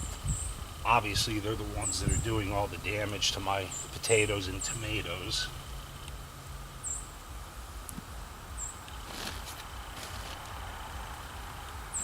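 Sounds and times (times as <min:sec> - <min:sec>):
faint outdoor rumble: 0:00.0 - 0:12.0
rustling scrape: 0:08.9 - 0:10.6.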